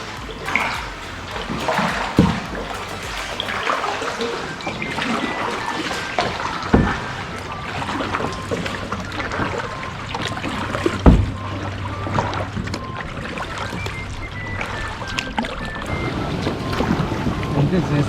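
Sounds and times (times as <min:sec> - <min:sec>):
short low thumps: 0:00.0 - 0:03.8
water sloshing around kayak: 0:00.0 - 0:18.0.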